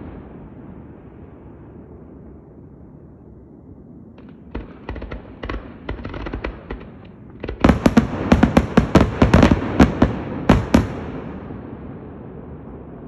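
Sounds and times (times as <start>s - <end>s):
fireworks bangs and cracks: 4.2s - 12.0s.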